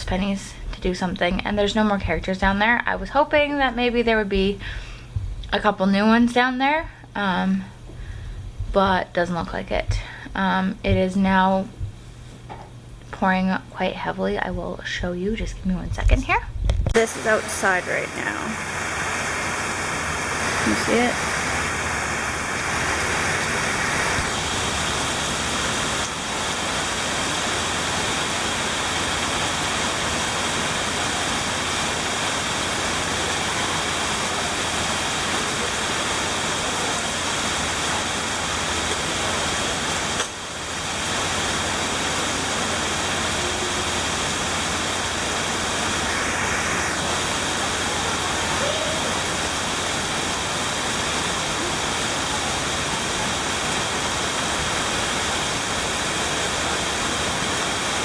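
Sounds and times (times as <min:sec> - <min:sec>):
heavy rain pouring: 0:16.9 - 0:58.0.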